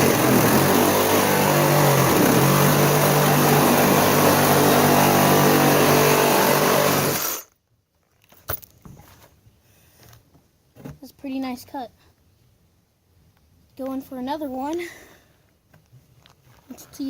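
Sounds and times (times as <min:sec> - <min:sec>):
power saw cutting sheet metal: 0:00.0 - 0:07.5.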